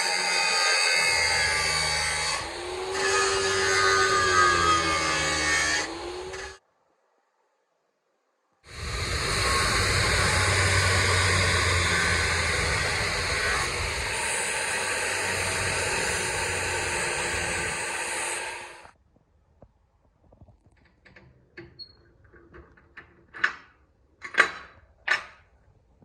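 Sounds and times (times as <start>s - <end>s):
workshop machine hissing: 8.7s - 19.0s.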